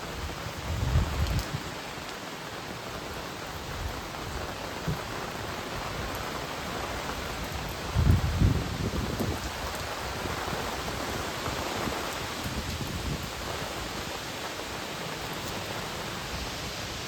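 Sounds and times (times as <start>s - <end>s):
wind gusts rumbling on microphone: 0.0s - 2.2s, 3.0s - 17.0s
strong wind blowing: 0.1s - 1.8s, 7.0s - 14.8s.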